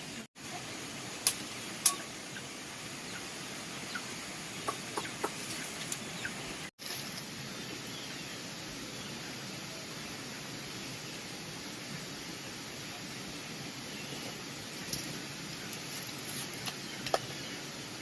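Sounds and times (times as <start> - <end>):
steady hiss: 0.0 - 18.0
poultry clucking: 3.9 - 6.4.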